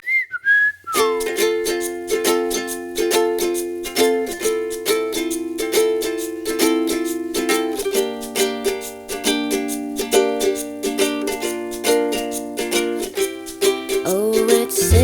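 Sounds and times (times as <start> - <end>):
plucked strings strummed: 1.0 - 15.0
held chords: 14.8 - 15.0.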